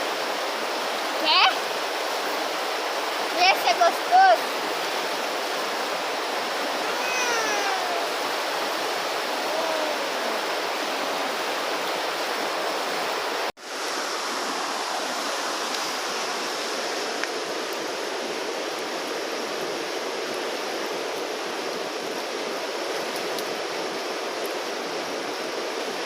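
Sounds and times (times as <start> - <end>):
falling whistled calls: 6.8 - 8.2.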